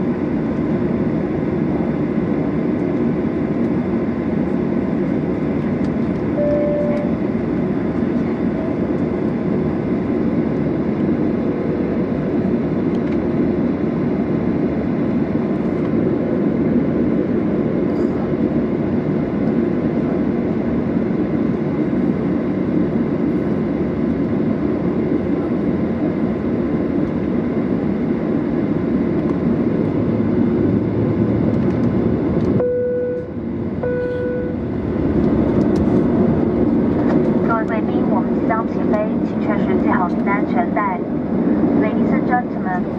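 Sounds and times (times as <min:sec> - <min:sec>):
aircraft cabin engine noise: 0:00.0 - 0:42.9
short beeps: 0:06.4 - 0:07.2, 0:32.6 - 0:34.6.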